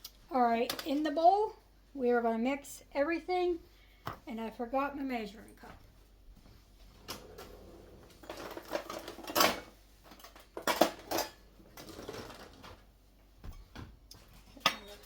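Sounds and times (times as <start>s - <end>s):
dishes and utensils clinking: 14.4s - 15.0s.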